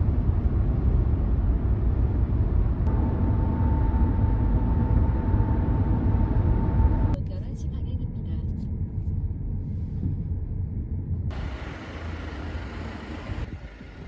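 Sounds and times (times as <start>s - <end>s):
engine rumbling: 0.0s - 14.0s
thin steady whine: 2.8s - 8.3s.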